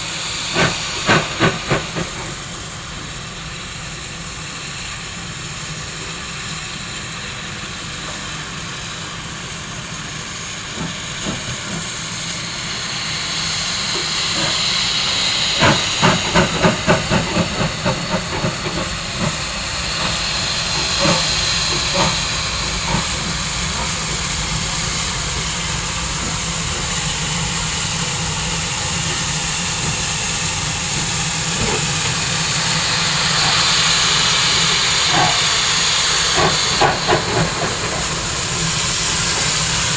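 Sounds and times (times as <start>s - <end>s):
steam locomotive hissing: 0.0s - 39.9s
locomotive exhaust beats: 10.1s - 39.9s.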